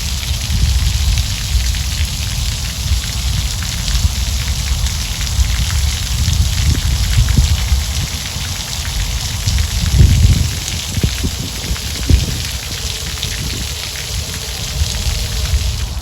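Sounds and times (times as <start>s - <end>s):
water splashing onto ground: 0.0s - 16.0s.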